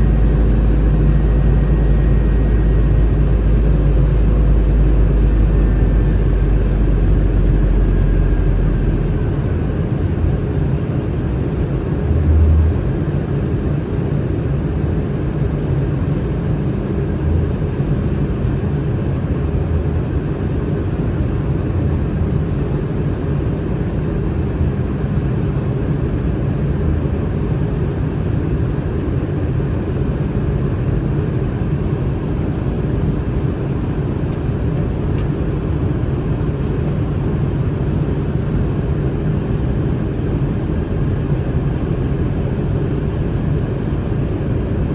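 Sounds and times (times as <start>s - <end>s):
deep low rumble: 0.0s - 10.4s, 12.0s - 13.2s
airliner cabin engine rumble: 0.0s - 44.9s.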